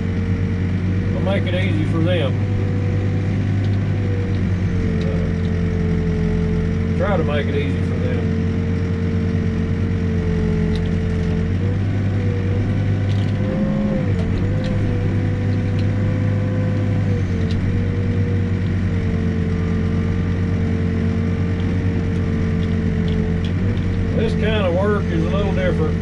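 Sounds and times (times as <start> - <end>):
backhoe engine running: 0.0 - 26.0
hydraulic whine: 0.0 - 26.0.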